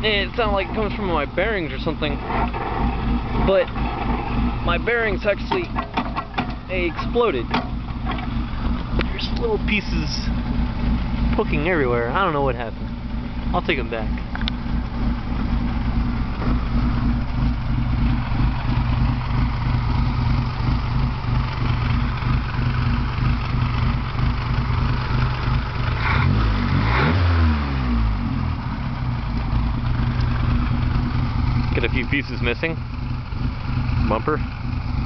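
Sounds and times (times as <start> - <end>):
car engine idling: 0.0 - 35.0
car engine revving: 0.0 - 35.0.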